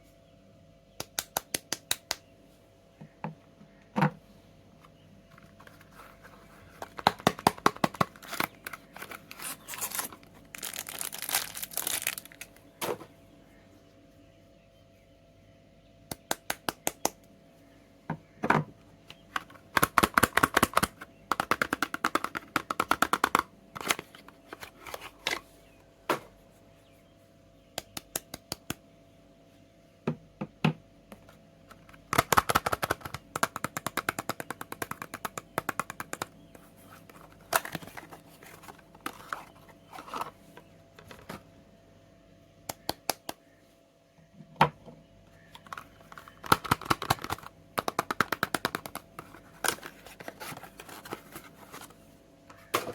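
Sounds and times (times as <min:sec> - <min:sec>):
rapid crackling clicks of packaging: 0:06.8 - 0:12.6.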